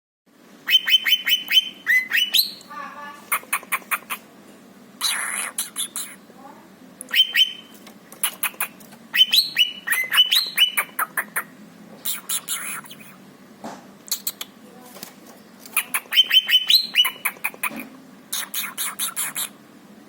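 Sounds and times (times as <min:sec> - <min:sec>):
bird chirping and clicking: 0:00.7 - 0:02.7, 0:07.0 - 0:12.8, 0:14.0 - 0:14.5, 0:15.6 - 0:19.5.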